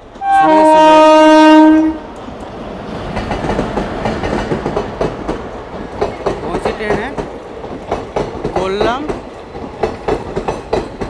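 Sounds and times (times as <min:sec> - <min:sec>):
train horn blast: 0:00.2 - 0:02.1
train wheels clacking over rail joints: 0:02.1 - 0:11.0.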